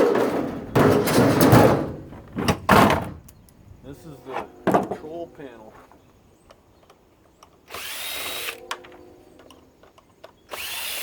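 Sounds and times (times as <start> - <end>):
power drill whining: 7.7 - 8.6, 10.5 - 11.0.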